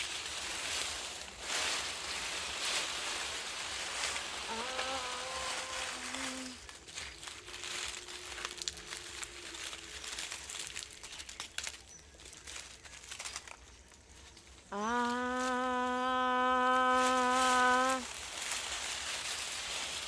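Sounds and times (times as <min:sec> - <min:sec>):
breathy hissing voice: 0:04.2 - 0:06.7, 0:14.7 - 0:18.2
crackling and rustling clicks: 0:06.7 - 0:14.6
held sung notes: 0:14.7 - 0:18.1.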